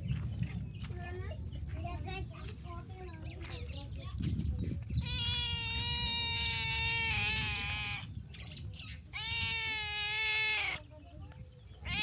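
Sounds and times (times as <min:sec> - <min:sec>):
goat bleating: 0:05.0 - 0:08.0, 0:09.1 - 0:10.8.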